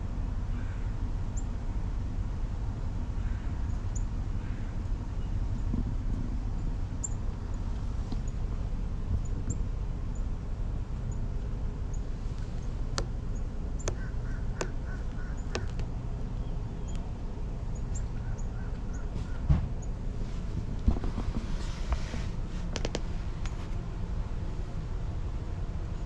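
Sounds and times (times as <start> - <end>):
low rumble of outdoor noise: 0.0 - 26.0
sharp clicks: 13.8 - 15.9.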